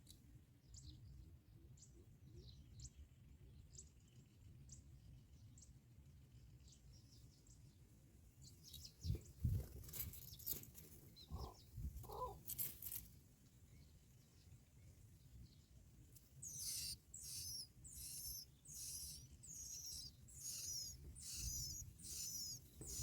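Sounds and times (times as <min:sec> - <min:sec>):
bird chirps: 0:08.4 - 0:13.0, 0:16.3 - 0:23.0
short low bird calls: 0:11.2 - 0:12.4, 0:16.4 - 0:23.0.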